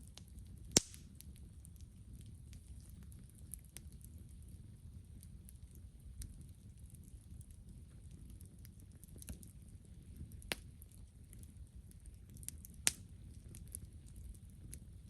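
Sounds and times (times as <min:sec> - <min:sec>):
campfire wood crackling: 0:00.0 - 0:15.0
low fire rumble: 0:00.0 - 0:15.0
sharp fire pops: 0:00.6 - 0:01.3, 0:12.3 - 0:13.8.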